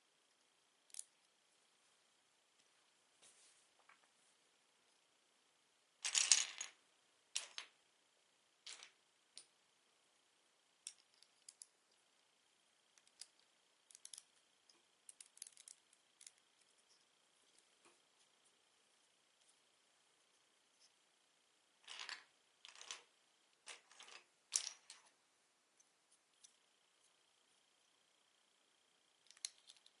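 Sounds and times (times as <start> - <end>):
light clicks of pieces handled: 10.8 - 12.0, 12.9 - 18.3, 29.2 - 30.0.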